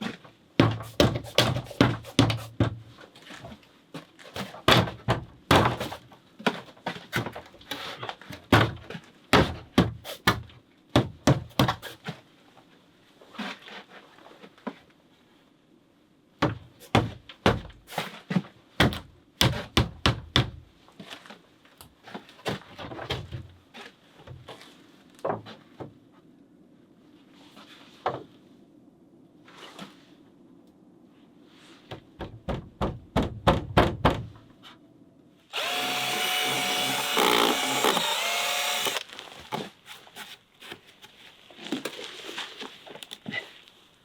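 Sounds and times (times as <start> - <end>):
knocking on wood: 31.9 - 34.4.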